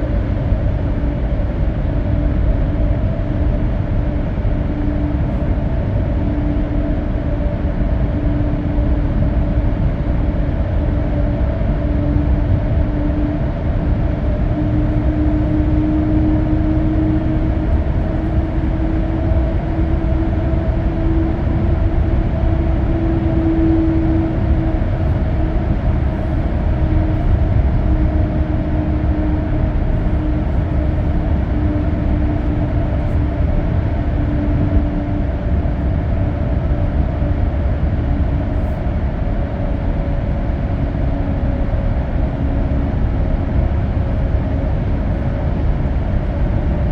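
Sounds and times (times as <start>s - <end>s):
car road noise from inside: 13.4s - 34.0s.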